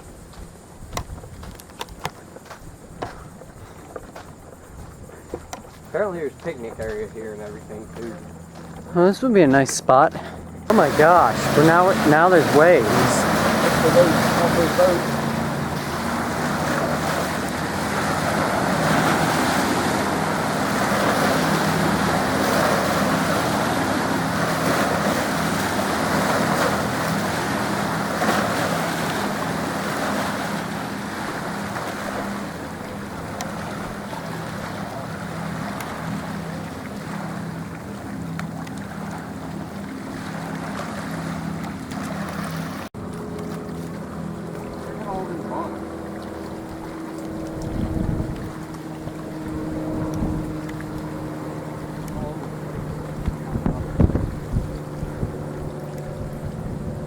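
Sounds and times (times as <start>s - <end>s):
wind on microphone: 0.0s - 5.7s, 46.3s - 57.0s
boat engine drone: 0.0s - 57.0s
small waves washing against bank: 0.0s - 57.0s.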